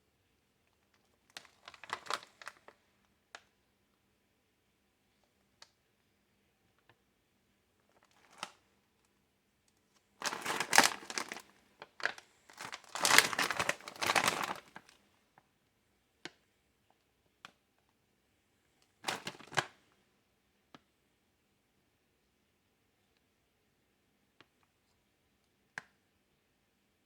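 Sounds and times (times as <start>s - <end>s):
plastic packaging crinkling: 1.3s - 2.8s, 7.9s - 8.6s, 10.2s - 15.0s, 19.0s - 19.8s.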